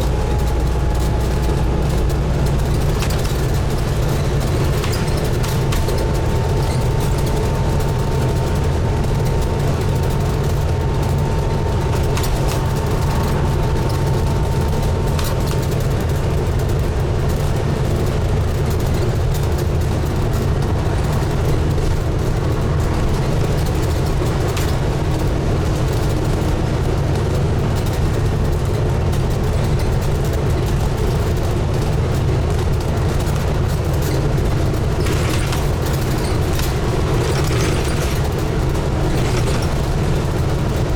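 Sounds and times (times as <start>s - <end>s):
road and body noise: 0.0s - 17.6s
bus diesel engine rumble: 0.0s - 40.9s.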